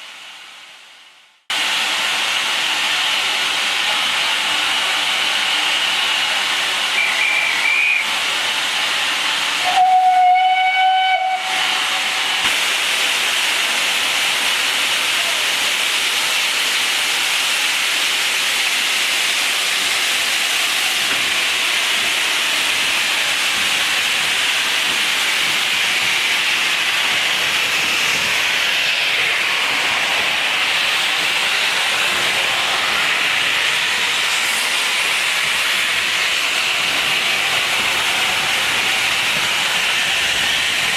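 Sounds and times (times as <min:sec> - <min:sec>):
steam locomotive hissing: 0:01.5 - 0:40.9
steam whistle blast: 0:06.9 - 0:08.1, 0:09.6 - 0:12.4.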